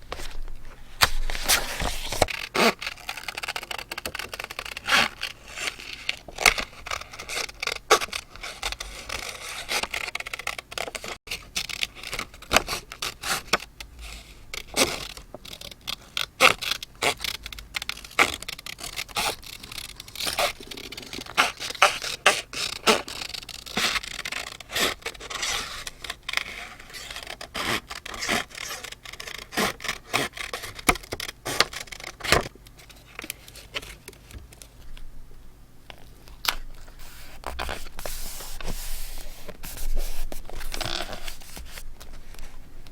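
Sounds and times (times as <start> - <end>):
paper scraping and rubbing: 0.1 - 12.2, 18.1 - 32.4, 36.8 - 42.5.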